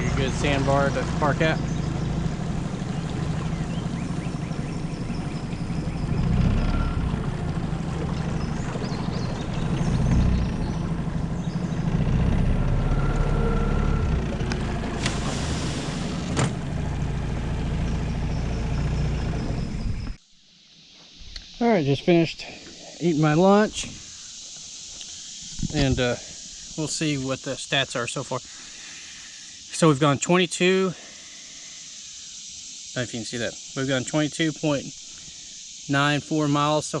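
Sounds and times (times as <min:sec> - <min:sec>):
water rushing along boat hull: 0:00.0 - 0:17.8
outboard motor running: 0:00.0 - 0:20.2.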